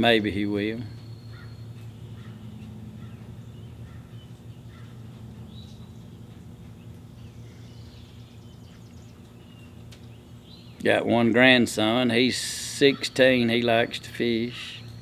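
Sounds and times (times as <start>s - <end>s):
steady low hum: 0.0s - 15.0s
bird chirps: 0.8s - 10.8s.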